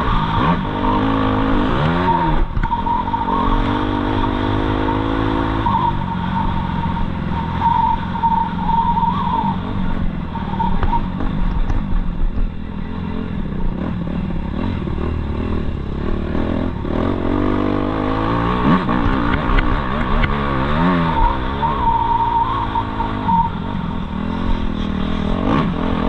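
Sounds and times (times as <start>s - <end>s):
motocross bike engine revving: 0.0s - 8.7s.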